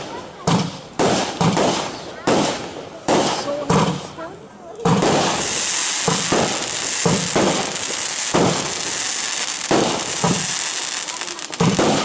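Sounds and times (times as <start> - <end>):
firework reports: 0.0 - 12.0
firework hiss: 4.9 - 12.0.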